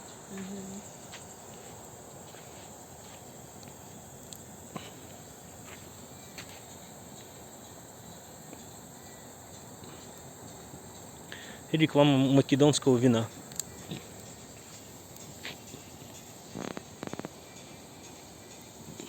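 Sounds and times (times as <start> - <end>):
crickets chirring: 0.0 - 19.0
faint clicks: 13.5 - 14.3.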